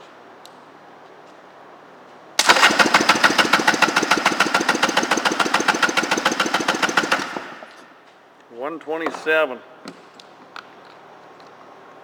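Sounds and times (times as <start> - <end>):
electric starter cranking engine: 2.4 - 7.8.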